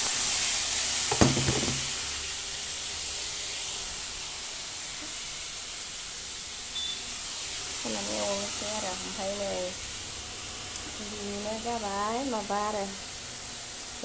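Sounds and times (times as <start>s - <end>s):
food sizzling on stove: 0.0s - 14.0s
sharp knock: 1.1s - 2.0s.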